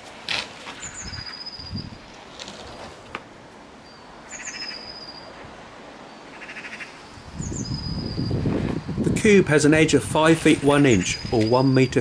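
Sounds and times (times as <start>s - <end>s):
birds singing: 0.8s - 2.0s, 3.8s - 5.4s, 6.1s - 9.0s, 10.8s - 12.0s.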